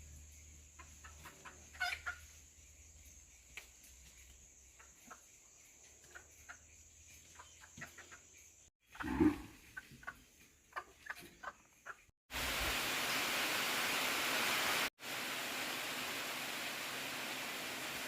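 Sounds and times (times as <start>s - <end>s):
chickens clucking: 0.7s - 2.4s, 4.8s - 5.4s, 6.0s - 12.1s
water rushing: 12.3s - 18.0s.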